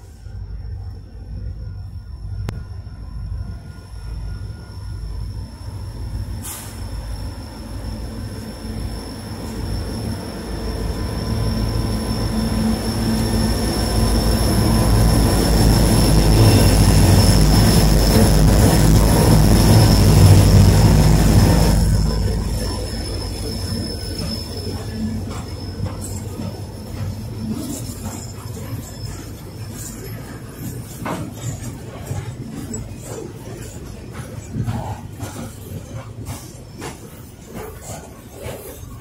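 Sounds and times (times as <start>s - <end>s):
diesel locomotive engines rumbling: 0.0s - 39.0s
high-pitched wheel squeal: 6.5s - 30.9s.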